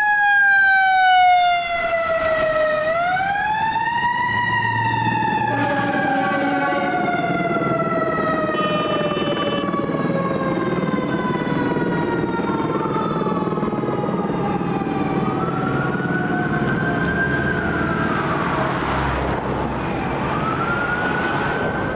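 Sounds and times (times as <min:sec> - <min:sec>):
ambulance siren wailing: 0:00.0 - 0:21.9
fire engine siren wailing: 0:00.0 - 0:21.9.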